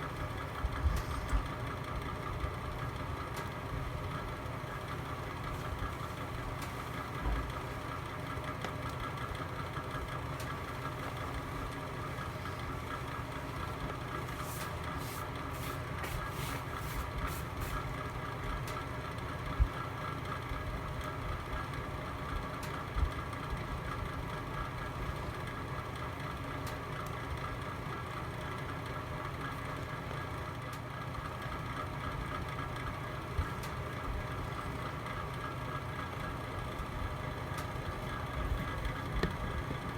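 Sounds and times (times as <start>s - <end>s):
fire rumbling in fireplace: 0.1s - 20.0s.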